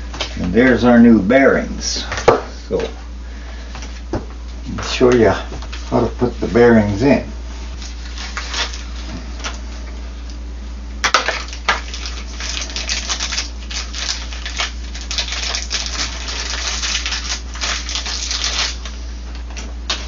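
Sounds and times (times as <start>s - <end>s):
low electrical hum: 0.0s - 20.0s
parts rustling and crinkling: 3.7s - 9.8s, 11.2s - 20.0s.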